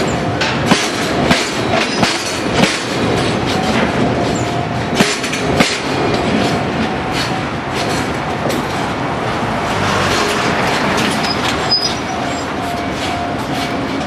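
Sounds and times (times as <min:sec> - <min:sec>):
clacks over rail joints: 0:00.0 - 0:14.0
train wheels rumbling: 0:00.0 - 0:14.0
faint wheel squeal: 0:11.2 - 0:12.5.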